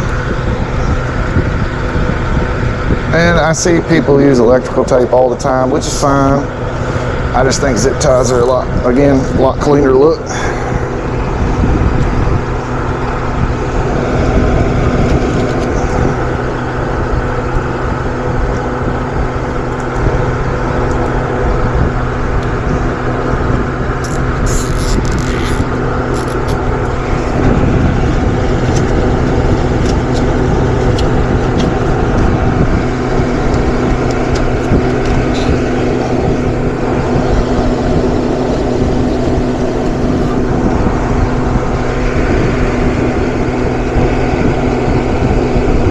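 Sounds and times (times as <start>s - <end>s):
electric motor hum: 0.0s - 45.9s
short high rasps: 24.0s - 26.7s.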